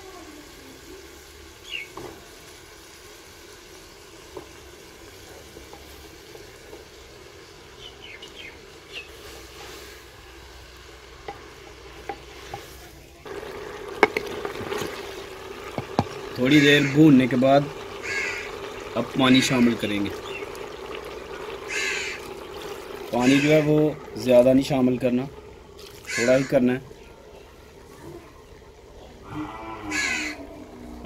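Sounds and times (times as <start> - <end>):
vegetables sizzling in a pot: 0.0 - 31.0
wooden spoon knocking clay pot: 13.9 - 16.2.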